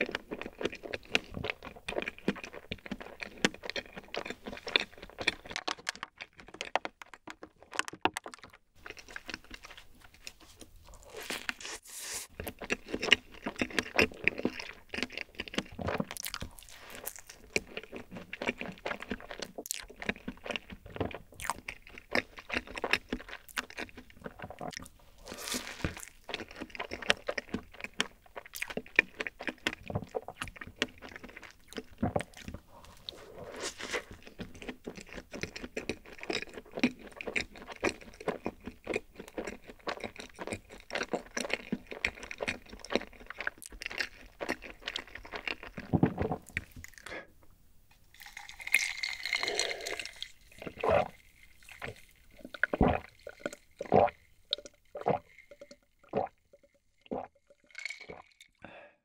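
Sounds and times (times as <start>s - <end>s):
close chewing mouth clicks: 0.0s - 11.7s, 12.4s - 47.2s, 48.2s - 58.6s.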